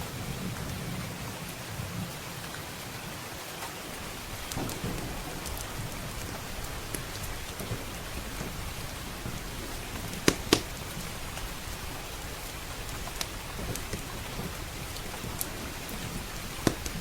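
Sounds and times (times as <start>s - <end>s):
rain pattering on roof: 0.0s - 17.0s
wood fire crackling pops: 3.6s - 17.0s.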